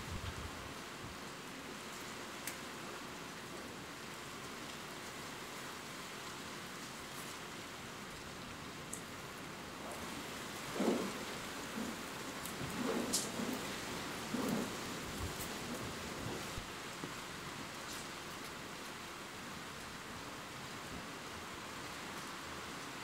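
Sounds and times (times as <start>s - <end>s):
steady rain: 0.0s - 23.0s
raindrop ticks: 1.9s - 2.7s, 8.9s - 9.1s, 9.8s - 17.2s
low rumble of thunder: 9.7s - 16.7s.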